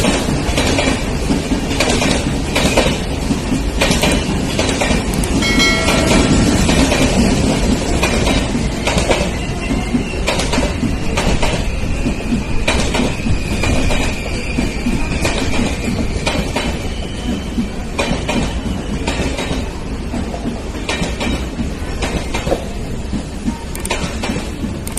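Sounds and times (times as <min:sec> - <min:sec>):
train coaches rumbling past: 0:00.0 - 0:24.9
wheels clacking over rail joints: 0:00.0 - 0:24.9
brief high tone: 0:05.4 - 0:07.3.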